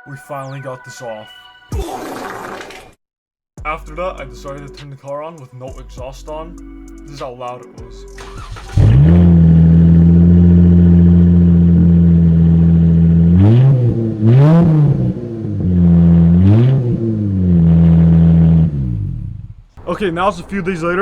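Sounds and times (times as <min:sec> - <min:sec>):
loud car engine idling: 0:08.2 - 0:14.2
car engine revving: 0:08.2 - 0:20.9.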